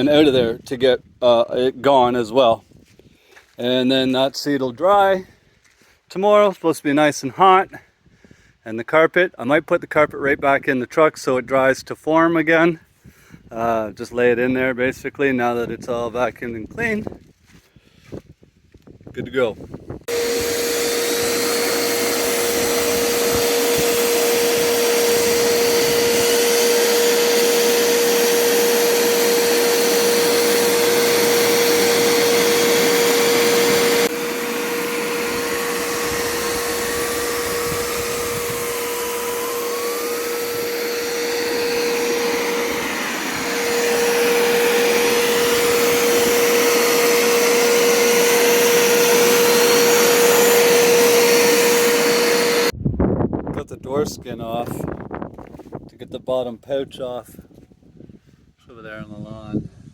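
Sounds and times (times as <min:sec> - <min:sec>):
vacuum sucking water: 0:20.0 - 0:52.7.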